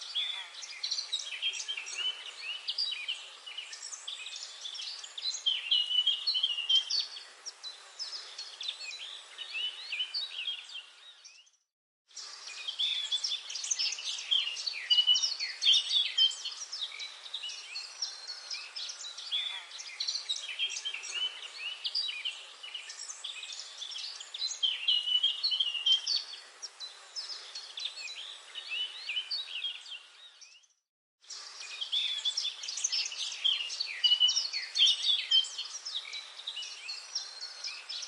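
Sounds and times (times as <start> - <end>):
many birds chirping: 0.0 - 38.0.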